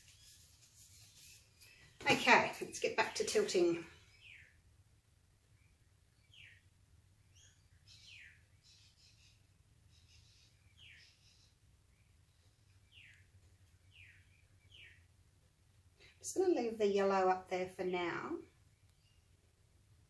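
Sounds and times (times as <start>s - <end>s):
faint bird chirping: 0.0s - 20.0s.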